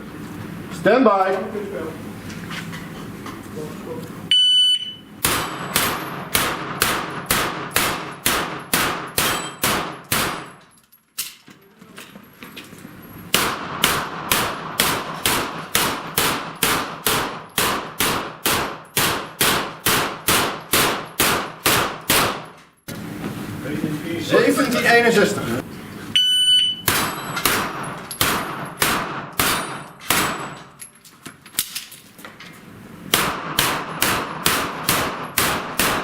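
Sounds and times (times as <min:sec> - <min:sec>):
rapid pistol gunshots: 0:05.2 - 0:10.6, 0:13.3 - 0:22.5, 0:26.9 - 0:30.5, 0:33.1 - 0:36.0
steel plates ringing: 0:08.1 - 0:09.7.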